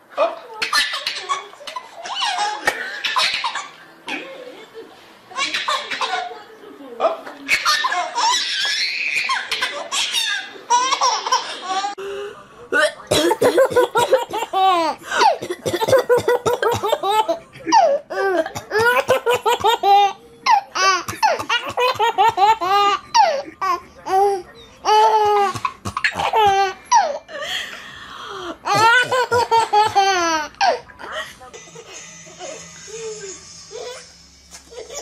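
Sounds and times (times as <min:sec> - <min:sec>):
baby laughing: 0:07.5 - 0:12.0, 0:13.5 - 0:27.2, 0:28.7 - 0:31.2, 0:34.7 - 0:35.0.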